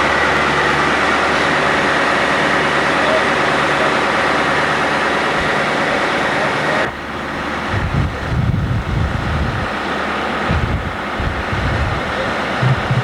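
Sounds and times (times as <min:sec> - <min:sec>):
fire truck engine running: 0:00.0 - 0:13.0
steady rushing noise: 0:00.0 - 0:13.0
wind gusts on microphone: 0:04.7 - 0:13.0.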